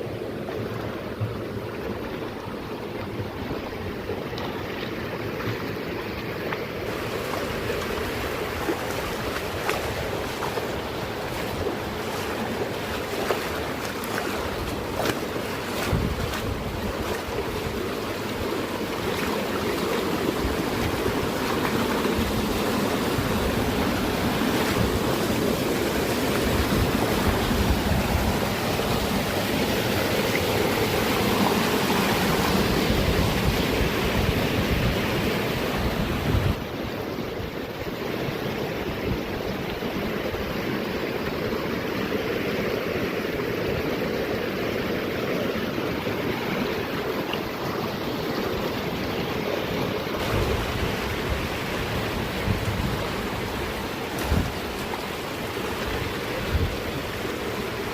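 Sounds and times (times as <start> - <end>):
water rushing over rocks: 0.0 - 57.9.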